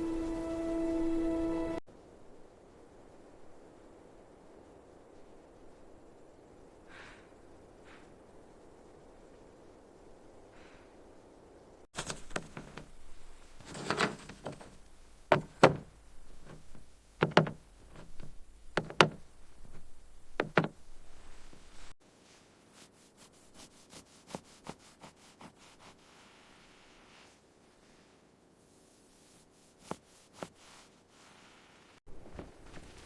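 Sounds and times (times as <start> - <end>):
sharp knocks: 12.0 - 21.7.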